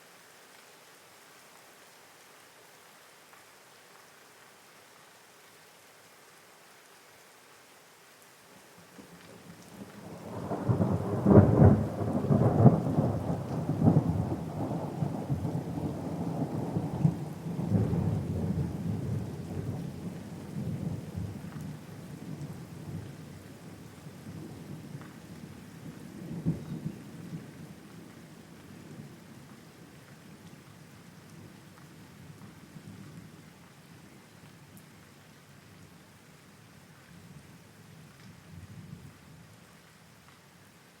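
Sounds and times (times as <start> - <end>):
steady rain: 0.0 - 41.0
thunder rolling and crackling: 9.7 - 23.1, 25.8 - 27.8.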